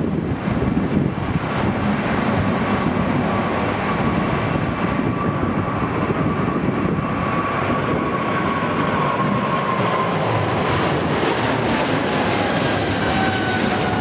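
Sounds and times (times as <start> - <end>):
jet engines roaring with whine: 0.0 - 14.0.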